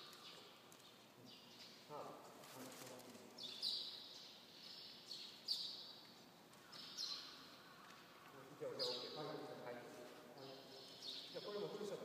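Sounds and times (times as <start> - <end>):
faint high bird calls: 3.5 - 9.4.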